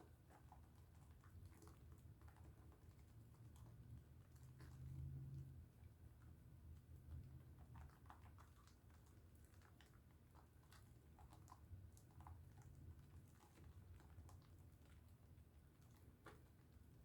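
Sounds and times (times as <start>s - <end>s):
soap lathering wet crackles: 7.6s - 17.0s.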